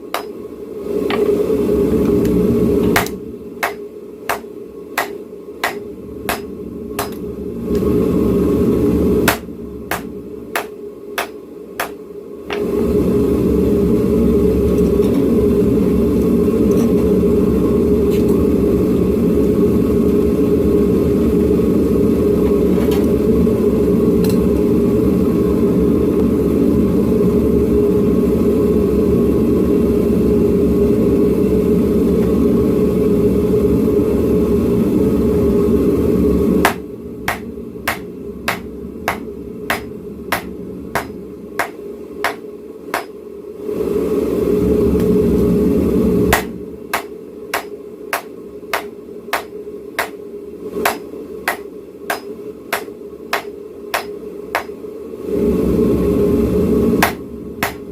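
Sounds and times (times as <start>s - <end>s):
hammer striking steel on anvil: 0.1s - 0.4s, 3.0s - 7.2s, 9.3s - 12.6s, 36.6s - 43.2s, 46.3s - 50.2s, 50.8s - 54.8s, 57.0s - 57.9s
forge roaring: 0.1s - 3.8s, 5.0s - 11.3s, 12.5s - 47.0s, 55.1s - 57.9s.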